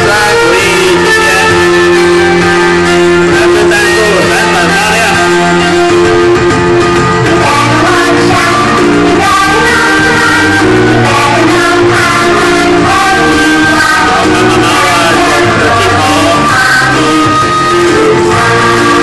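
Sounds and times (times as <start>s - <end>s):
singing over guitar: 0.0s - 1.7s, 7.3s - 19.0s.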